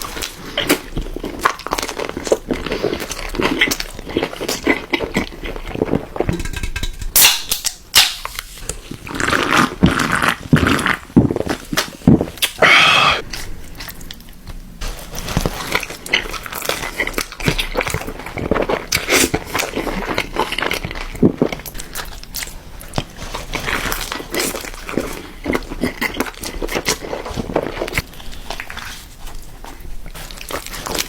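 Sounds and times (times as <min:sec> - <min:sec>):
crunching and chewing food: 0:00.0 - 0:06.9, 0:07.6 - 0:31.0.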